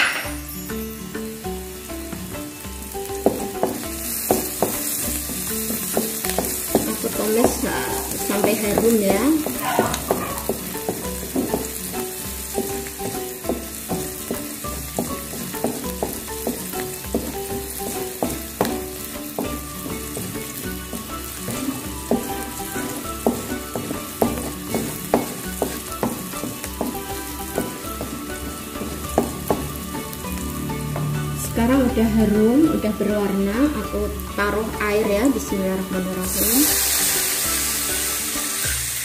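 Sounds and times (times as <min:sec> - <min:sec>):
garlic sizzling in hot oil: 0:00.2 - 0:39.0
wooden spatula scraping a wok: 0:03.2 - 0:31.3.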